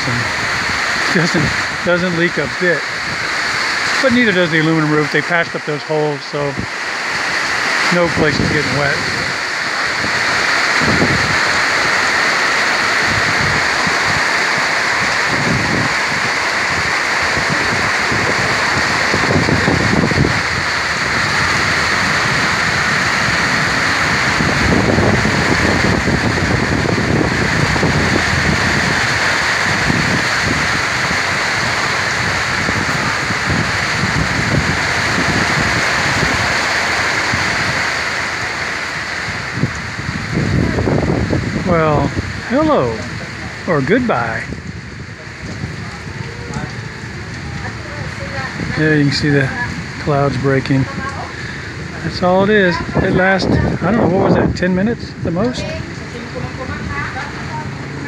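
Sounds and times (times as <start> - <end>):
heavy rain pouring: 0.0 - 58.0
wind buffeting microphone: 0.0 - 58.0.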